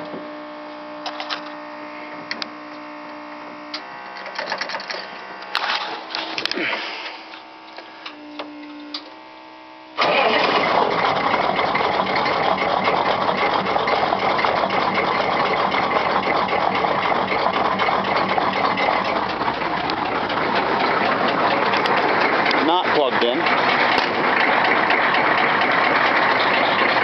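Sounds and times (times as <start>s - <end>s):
diesel engine starting and idling: 10.0s - 27.0s
engine lifter tapping: 16.2s - 27.0s.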